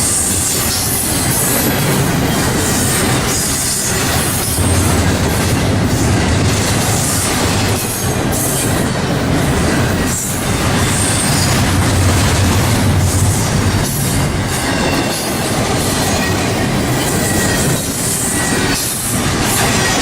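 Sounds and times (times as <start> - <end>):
train wheels rumbling on rails: 0.0 - 20.0
high-pitched wheel noise: 9.7 - 17.8.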